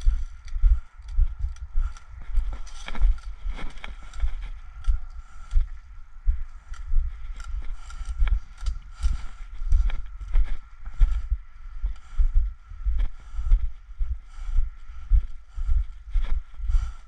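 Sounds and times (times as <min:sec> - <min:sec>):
gear clicking and rattling: 0:00.0 - 0:05.6, 0:06.5 - 0:10.3.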